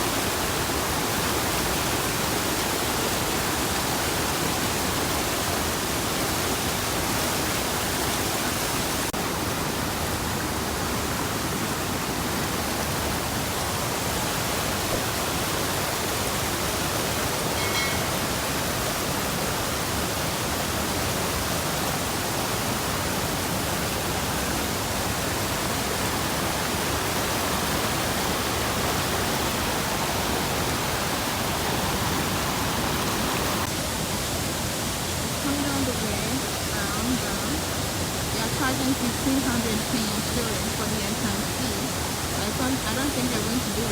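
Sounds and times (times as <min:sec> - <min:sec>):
waterfall rushing: 0:00.0 - 0:43.9
faint short high note: 0:17.6 - 0:18.4.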